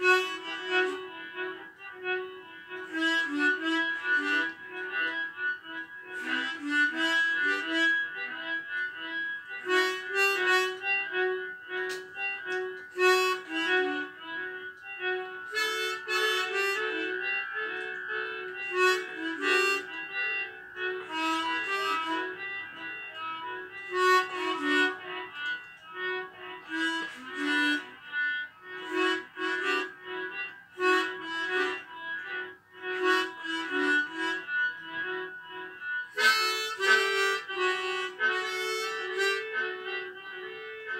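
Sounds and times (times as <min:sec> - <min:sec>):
harmonica melody: 0:00.0 - 0:40.9.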